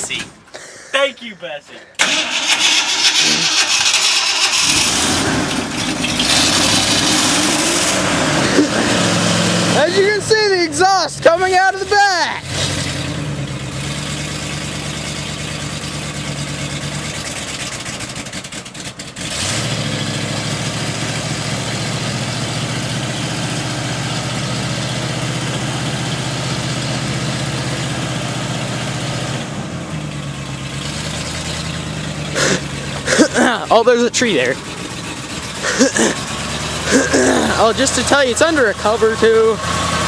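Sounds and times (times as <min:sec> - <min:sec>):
pickup engine idling: 0:01.8 - 0:40.0.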